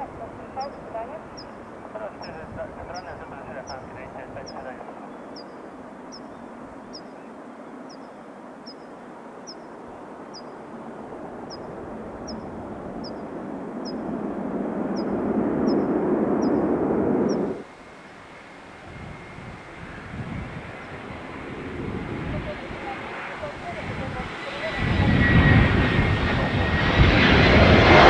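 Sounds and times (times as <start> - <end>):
bird chirping: 0.0 - 10.7, 11.4 - 14.1, 14.9 - 16.7
jet airliner engine noise: 0.0 - 28.0.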